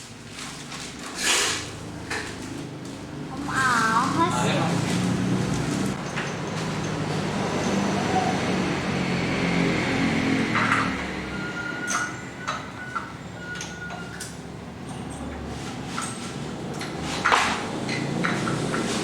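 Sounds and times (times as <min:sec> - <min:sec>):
mechanical background noise: 0:00.0 - 0:19.0.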